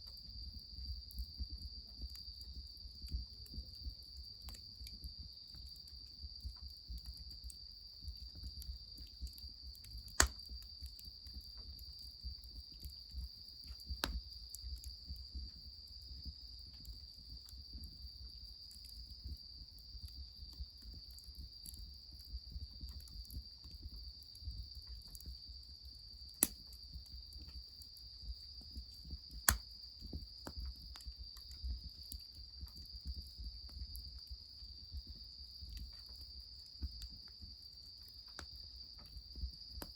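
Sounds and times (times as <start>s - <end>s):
crickets chirring: 0.0s - 39.9s
wood fire crackling: 9.0s - 10.9s, 13.6s - 15.4s, 26.2s - 27.5s, 28.5s - 33.1s.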